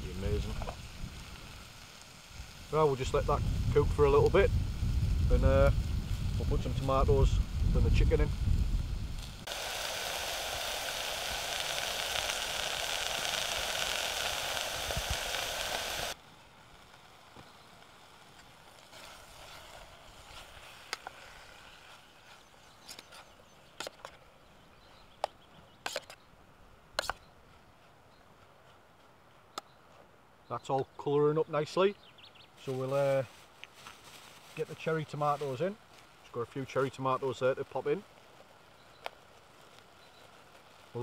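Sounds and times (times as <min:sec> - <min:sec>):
food sizzling in a pot: 0:00.0 - 0:16.2.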